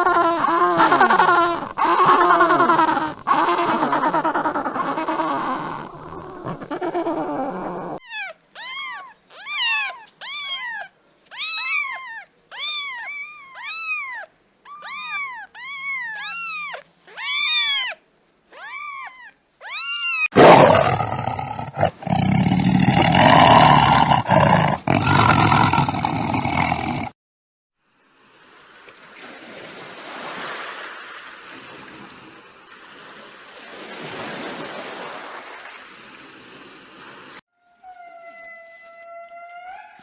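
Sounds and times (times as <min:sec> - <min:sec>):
harsh rasping animal sound: 0:00.0 - 0:26.9
animal short high-pitched calls: 0:08.0 - 0:20.3.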